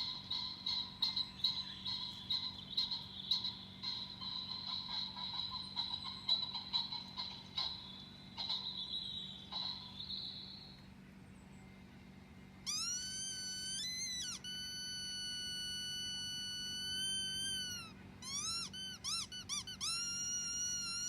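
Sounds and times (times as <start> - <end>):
high-pitched squeaky tone: 12.7 - 21.0
short high chirps: 12.7 - 21.0.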